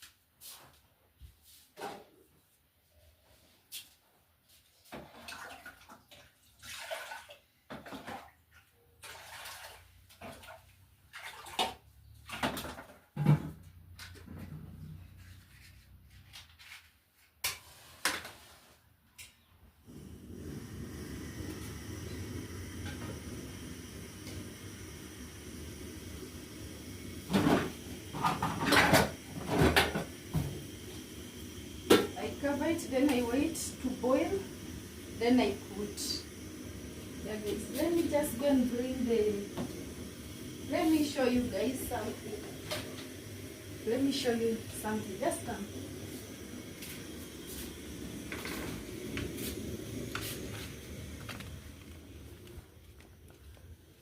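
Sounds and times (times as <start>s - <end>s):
water pouring into a pot: 5.1s - 8.2s, 9.0s - 12.6s, 19.9s - 52.4s.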